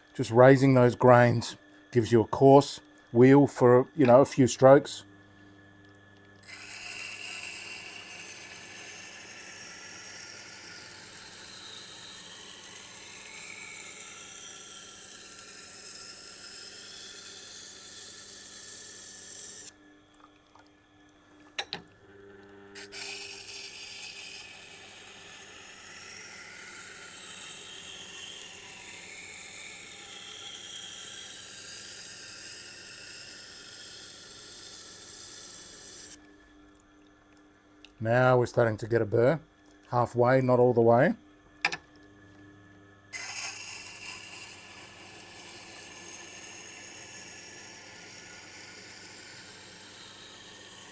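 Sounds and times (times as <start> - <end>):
machine low hum: 0.0 - 14.3, 19.6 - 27.1
knife grinding on a grindstone: 6.4 - 19.7, 22.8 - 28.5, 43.2 - 50.9.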